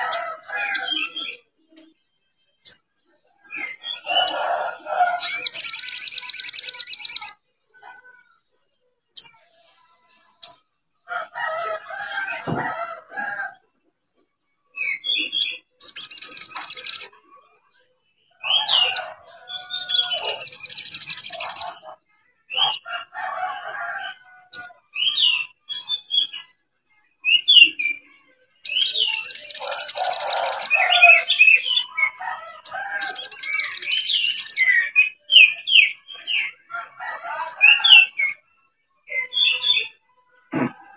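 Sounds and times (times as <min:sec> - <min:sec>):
bird chattering: 0:05.2 - 0:07.4, 0:15.3 - 0:17.2, 0:19.7 - 0:21.9, 0:28.7 - 0:31.3, 0:32.7 - 0:34.6
bird trilling: 0:19.6 - 0:21.8, 0:28.7 - 0:31.5.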